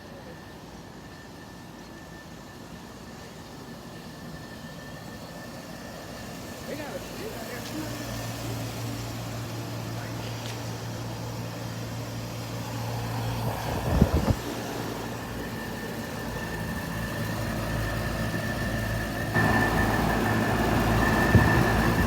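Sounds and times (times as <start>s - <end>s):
high whine: 0.1s - 22.0s.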